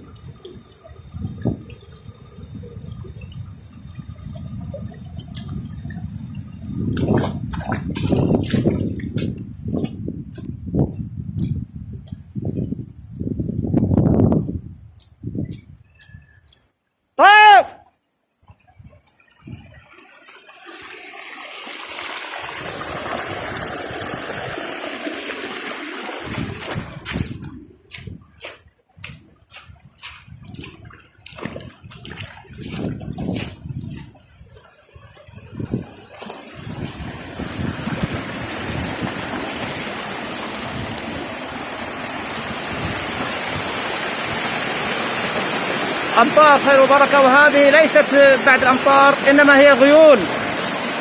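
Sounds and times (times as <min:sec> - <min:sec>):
stream water rushing: 0:19.2 - 0:51.0.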